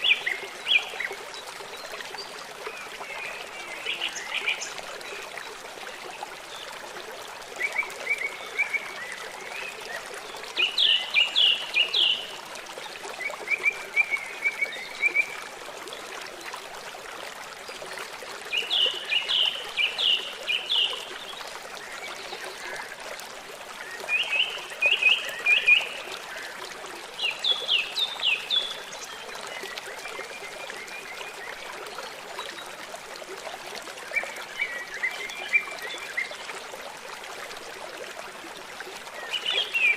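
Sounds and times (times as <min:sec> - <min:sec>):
flowing river water: 0:00.0 - 0:39.9.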